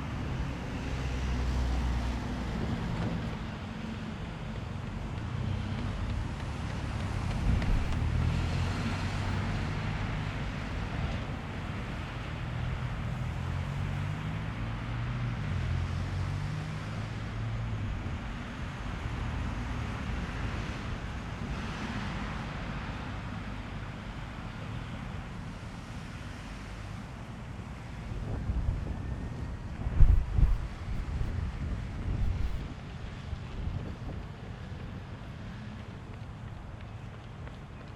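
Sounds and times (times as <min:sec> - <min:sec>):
steady rushing wind: 0:00.0 - 0:14.6, 0:16.9 - 0:37.2
wind buffeting microphone: 0:01.3 - 0:13.9, 0:27.5 - 0:37.8.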